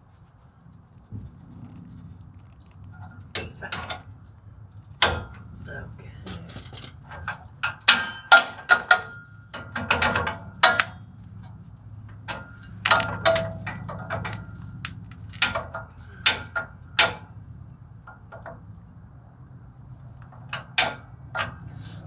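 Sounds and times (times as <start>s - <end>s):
metallic clicks and clanks of tools: 3.0s - 4.2s, 6.2s - 11.0s.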